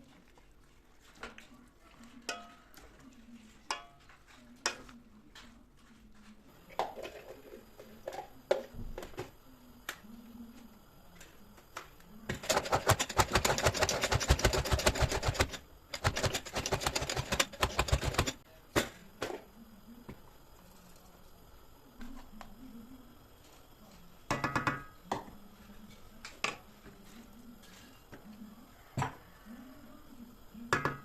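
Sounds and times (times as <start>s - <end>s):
sharp clicking kitchen strokes: 11.7s - 18.9s.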